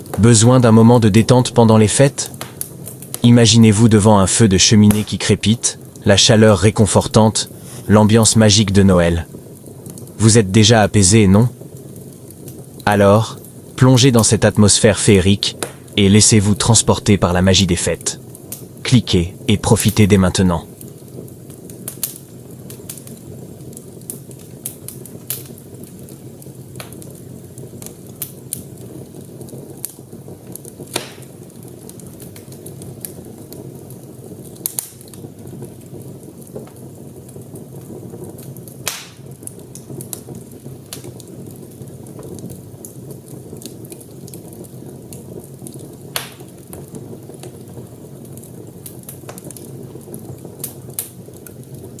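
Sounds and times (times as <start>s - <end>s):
fire crackling in a fireplace: 0.0s - 52.0s
wood popping and snapping: 2.2s - 3.3s, 4.8s - 5.3s, 15.5s - 16.0s, 20.8s - 52.0s.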